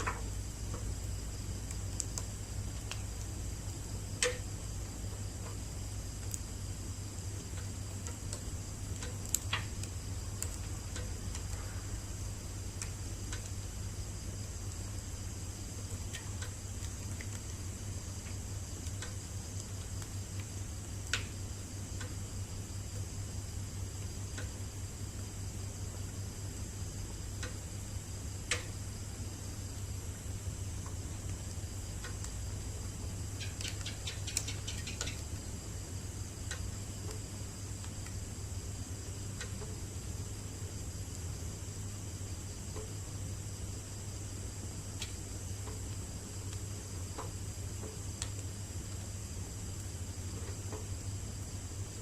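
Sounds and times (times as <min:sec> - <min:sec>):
wood fire crackling and popping: 0:00.0 - 0:27.8, 0:28.4 - 0:28.8, 0:30.3 - 0:35.6, 0:44.4 - 0:52.0
low steady hum: 0:00.0 - 0:52.0.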